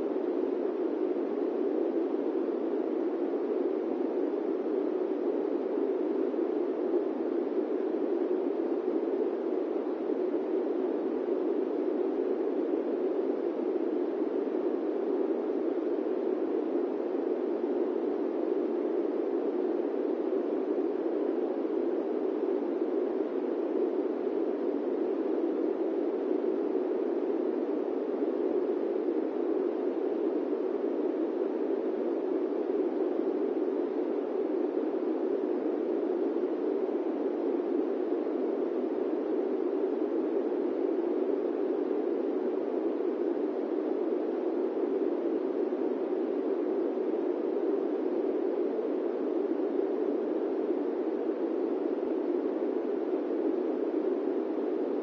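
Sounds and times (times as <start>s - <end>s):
airplane cabin white noise: 0.0s - 55.0s.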